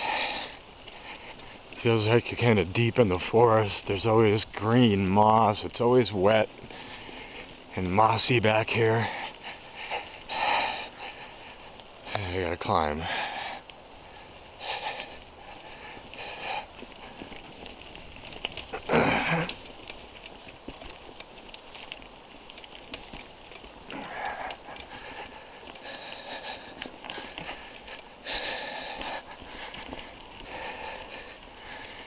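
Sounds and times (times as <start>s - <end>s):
person breathing hard: 0.0s - 1.6s, 9.0s - 11.8s, 13.0s - 17.4s, 23.9s - 32.0s
bike clicks and rattles: 0.0s - 5.8s, 13.0s - 32.0s.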